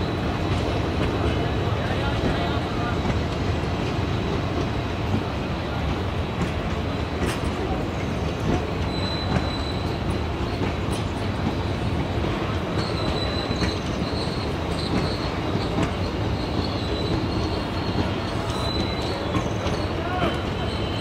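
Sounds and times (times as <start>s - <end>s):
train wheels clacking over rail joints: 0.1s - 21.0s
high wheel squeal: 8.8s - 10.6s, 12.6s - 21.0s.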